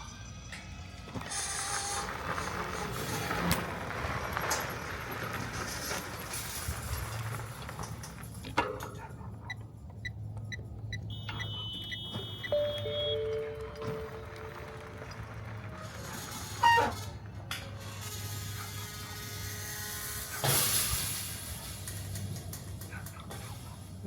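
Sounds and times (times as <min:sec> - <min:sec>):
road traffic passing: 0:00.0 - 0:24.0
short high electronic beeps: 0:10.9 - 0:14.2
steady high tone: 0:12.2 - 0:15.3.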